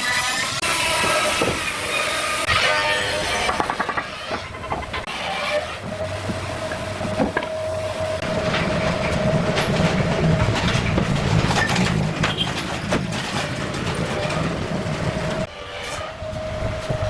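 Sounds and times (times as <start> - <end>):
machine whining and rumbling: 0.0 - 17.0
scattered knocks: 3.4 - 5.2, 5.8 - 7.6.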